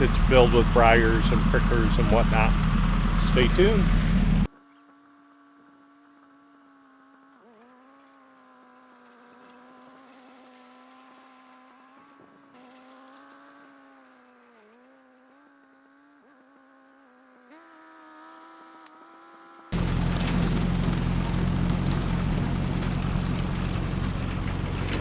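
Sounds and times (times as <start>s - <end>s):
distant tractor engine droning: 0.0s - 25.0s.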